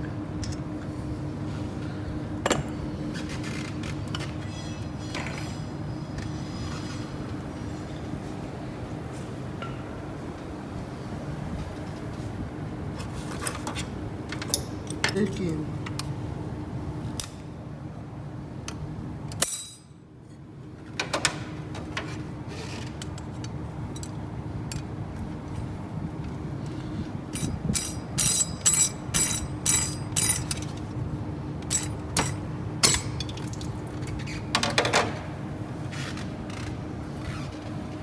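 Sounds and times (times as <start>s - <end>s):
steady low hum: 14.0s - 20.7s, 23.4s - 34.1s
metal tools clinking: 19.4s - 19.9s, 27.3s - 30.8s, 31.6s - 33.4s.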